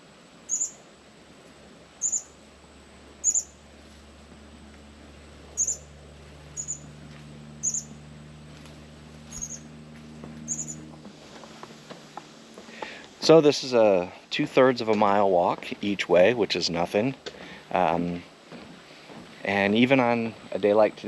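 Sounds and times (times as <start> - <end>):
faint low hum: 0.0 - 21.0
bird chip calls: 0.5 - 0.8, 2.0 - 2.4, 3.2 - 3.6, 5.6 - 5.9, 6.6 - 6.9, 7.6 - 8.0, 9.3 - 9.7, 10.5 - 10.8.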